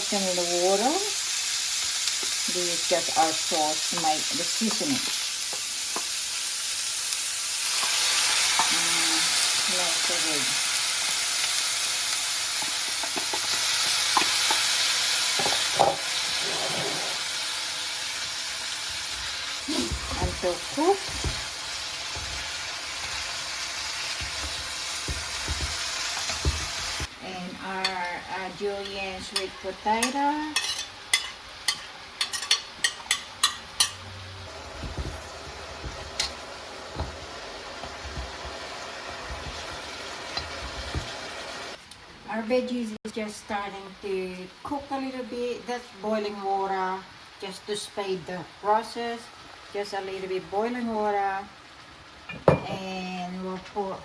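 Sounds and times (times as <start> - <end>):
vegetables sizzling in oil: 0.0 - 54.0
utensil knocking on pan: 19.9 - 22.6, 24.1 - 27.1, 34.8 - 41.2.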